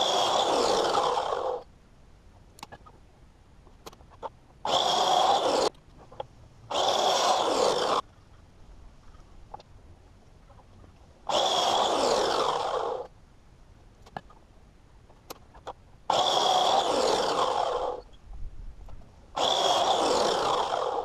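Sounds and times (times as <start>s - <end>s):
miter saw cutting boards: 0.0s - 1.6s, 4.6s - 5.7s, 6.7s - 8.0s, 11.3s - 13.1s, 16.1s - 18.1s, 19.4s - 21.0s.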